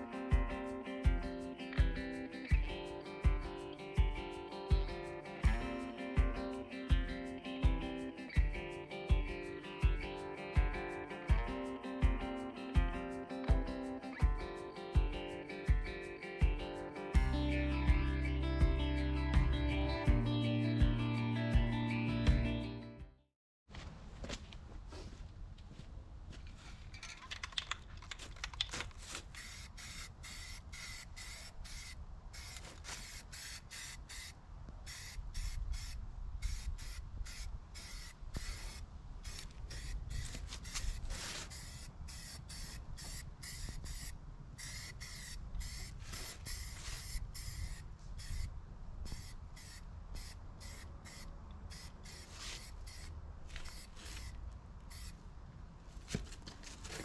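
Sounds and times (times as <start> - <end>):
sandpaper rasping strokes: 29.1 - 34.3, 34.9 - 48.5, 49.1 - 55.1.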